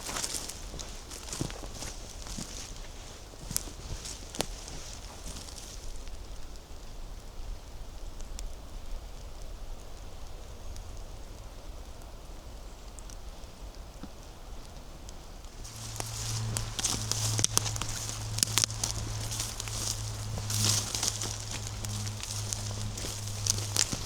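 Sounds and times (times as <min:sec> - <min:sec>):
dry leaves rustling: 0:00.0 - 0:06.5, 0:15.4 - 0:24.0
twig snaps: 0:15.5 - 0:24.0.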